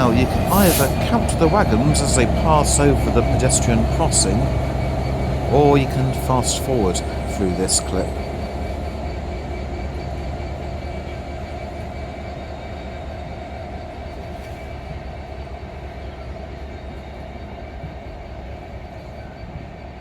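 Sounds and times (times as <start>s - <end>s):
freight wagons rolling over rail joints: 0.0s - 9.2s.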